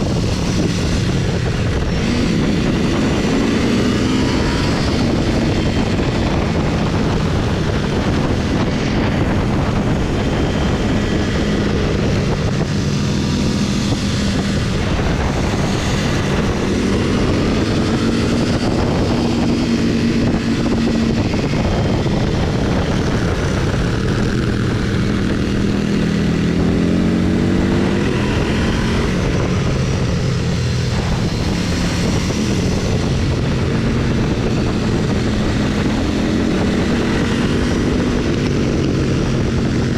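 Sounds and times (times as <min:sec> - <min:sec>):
motorcycle engine accelerating: 0:00.0 - 0:39.9
wind and road noise: 0:00.0 - 0:39.9.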